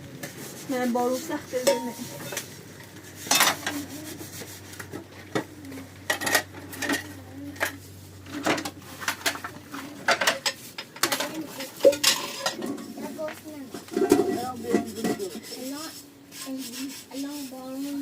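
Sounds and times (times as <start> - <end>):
pots and utensils clinking: 1.5 - 3.9, 4.8 - 15.5.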